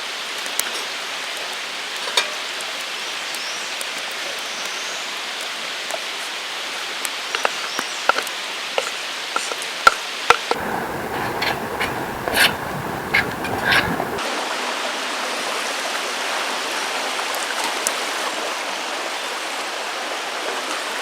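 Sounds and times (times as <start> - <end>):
campfire crackling and popping: 10.6 - 14.2.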